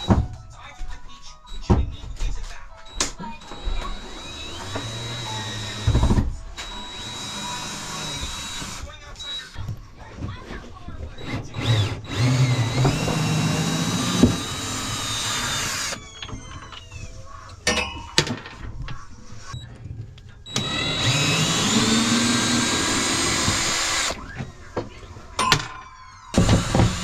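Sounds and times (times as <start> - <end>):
power drill running: 3.4 - 9.6, 11.2 - 16.9, 20.5 - 24.2, 26.3 - 27.0.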